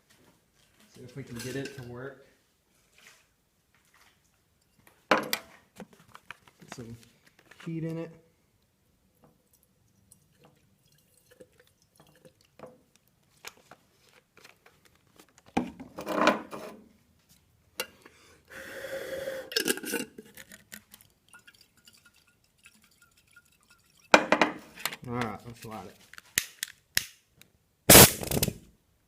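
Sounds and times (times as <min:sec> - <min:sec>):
glass jar rattling: 0:01.2 - 0:01.9, 0:19.5 - 0:24.6
glass jar clinks and knocks: 0:01.3 - 0:02.0, 0:22.8 - 0:24.6.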